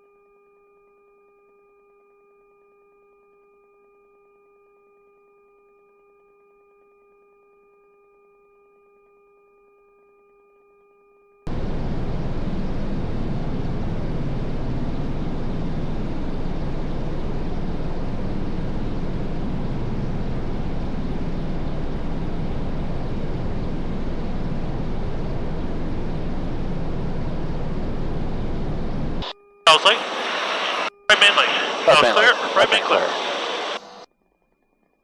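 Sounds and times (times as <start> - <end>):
helicopter rumbling from inside: 11.5 - 34.0.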